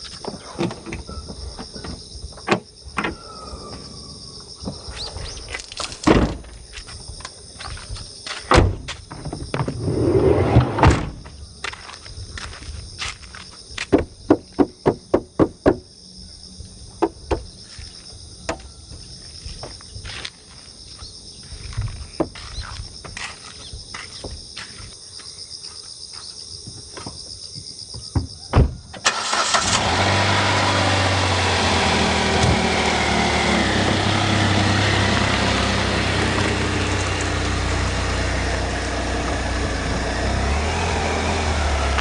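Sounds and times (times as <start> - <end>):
car engine starting and idling: 29.0 - 42.0.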